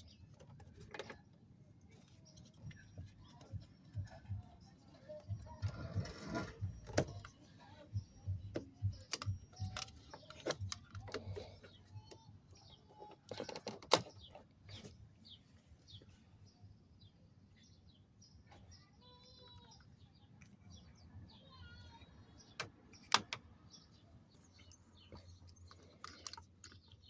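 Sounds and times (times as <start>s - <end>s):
faint bird chirps: 0.0s - 27.0s
clicks and knocks of hand work: 8.5s - 15.0s.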